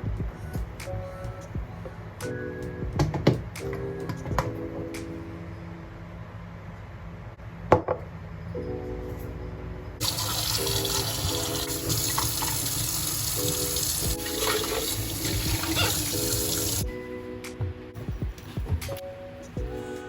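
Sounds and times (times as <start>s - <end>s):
background music: 0.0s - 6.6s, 8.4s - 20.0s
water running from a tap: 10.0s - 16.8s.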